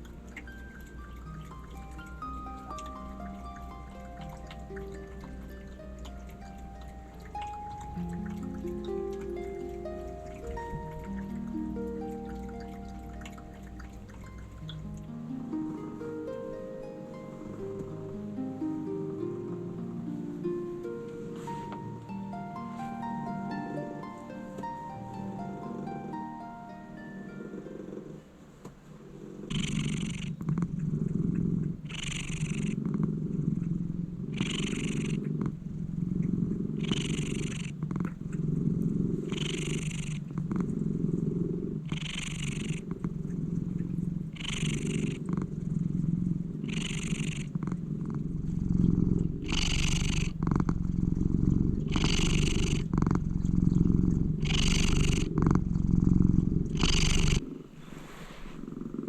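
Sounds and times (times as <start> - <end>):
cat purring: 0.0 - 59.0
cat breath hiss: 57.7 - 58.9.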